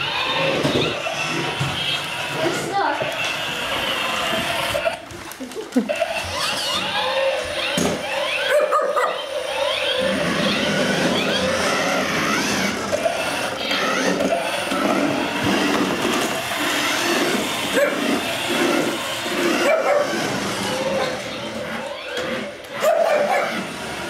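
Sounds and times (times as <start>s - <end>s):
small electric motors whirring: 0.0s - 24.0s
small dog barking and yipping: 8.3s - 9.3s, 17.7s - 18.1s, 19.6s - 20.2s, 22.8s - 23.6s.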